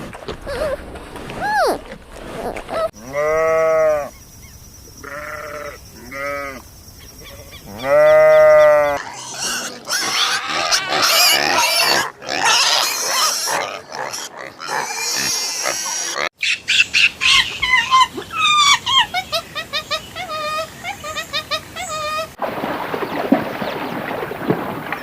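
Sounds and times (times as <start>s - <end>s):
farm animal calling: 2.7s - 4.2s, 5.0s - 6.6s, 7.2s - 22.4s.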